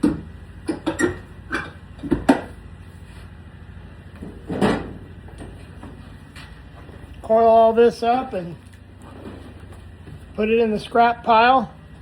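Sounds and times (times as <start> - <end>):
metal cover knocks and clanks: 0.0 - 2.5, 4.2 - 5.6.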